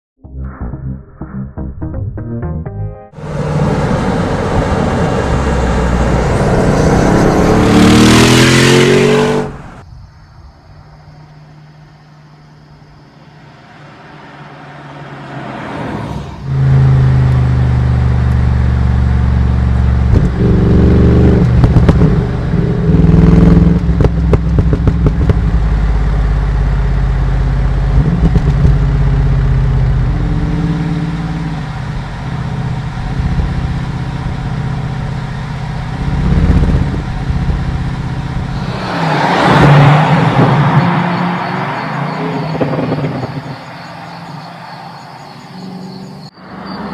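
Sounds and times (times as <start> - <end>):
car engine exhaust revving: 3.2 - 9.8, 16.4 - 46.2.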